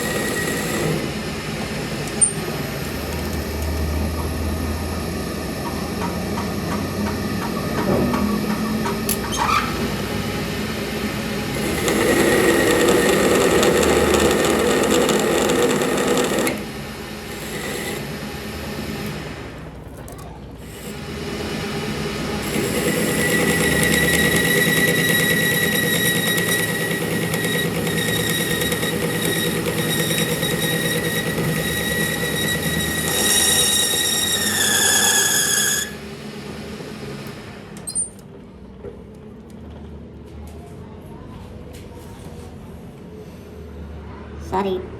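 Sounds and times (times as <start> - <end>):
power tool whine: 0.0 - 5.6, 9.4 - 19.6, 20.6 - 37.5.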